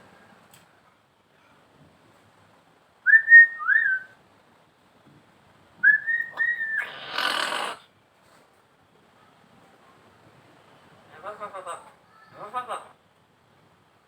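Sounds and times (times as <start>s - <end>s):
myna whistling: 3.1s - 4.1s, 5.8s - 7.4s.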